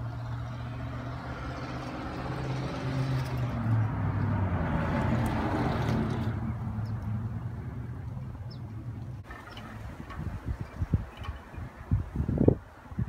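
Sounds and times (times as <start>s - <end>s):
wind blowing: 0.0s - 13.0s.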